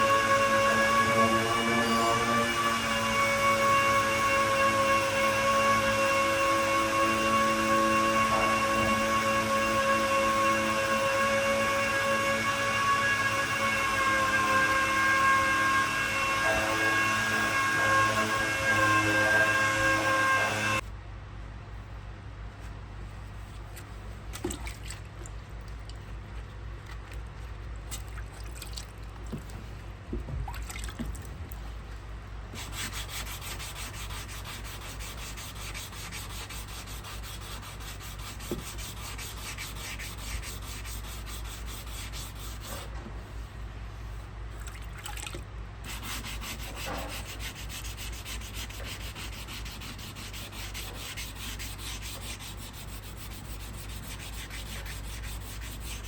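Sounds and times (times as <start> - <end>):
sanding paint: 0.0 - 20.8, 32.6 - 42.9, 45.9 - 56.0
low hum: 0.0 - 42.6.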